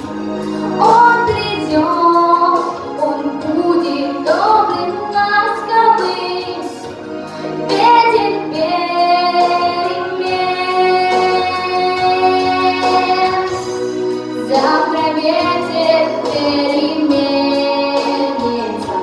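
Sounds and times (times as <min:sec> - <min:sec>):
sustained instrumental chords: 0:00.0 - 0:19.0
high voice singing: 0:07.6 - 0:13.6.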